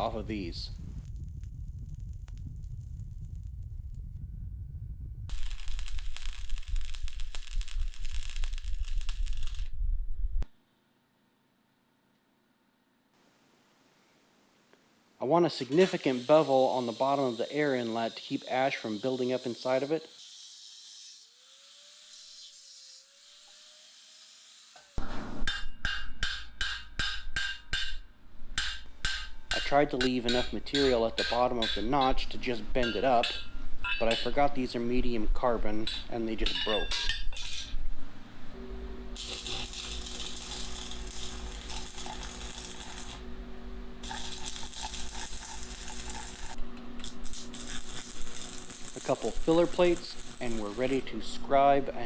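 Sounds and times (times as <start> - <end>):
faint hiss: 0.0 - 3.4, 13.2 - 19.9, 48.2 - 52.0
steady electrical hum: 0.0 - 4.2, 28.2 - 52.0
welding arc crackling: 0.0 - 4.2, 5.3 - 9.8, 15.4 - 19.4, 39.2 - 43.3, 44.0 - 51.9
hammer striking steel plate: 25.0 - 28.0, 28.6 - 32.2.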